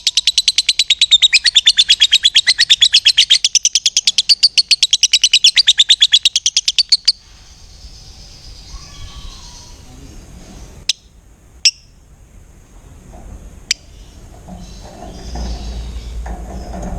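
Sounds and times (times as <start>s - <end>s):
sharp bird chirps: 0.0s - 9.8s
lovebird chattering trill: 0.0s - 9.9s.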